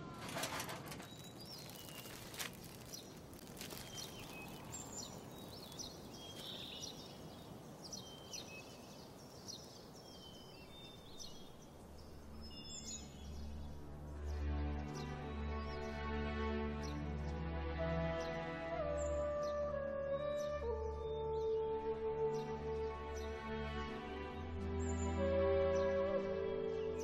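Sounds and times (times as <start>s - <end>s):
birds chirping: 0.0s - 27.0s
outdoor background hiss: 0.0s - 27.0s
soft background music: 11.8s - 27.0s.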